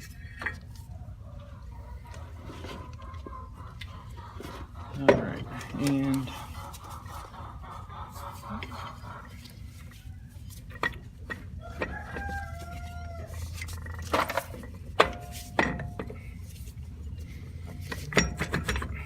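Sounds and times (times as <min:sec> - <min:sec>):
chicken calling: 0:00.8 - 0:10.5
metal knocks and clanks: 0:04.5 - 0:06.3, 0:13.6 - 0:16.3, 0:17.7 - 0:19.0.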